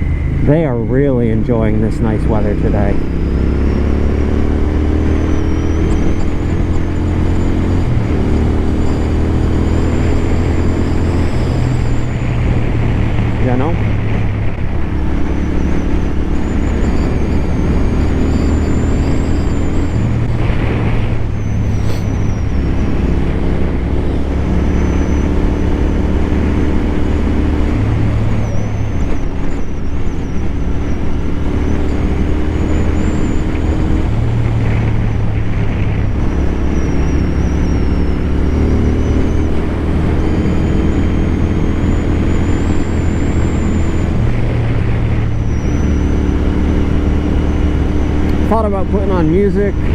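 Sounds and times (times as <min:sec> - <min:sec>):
motorcycle engine cruising: 0:00.0 - 0:49.9
wind rush: 0:21.2 - 0:23.1
helmet whistling: 0:21.2 - 0:25.4.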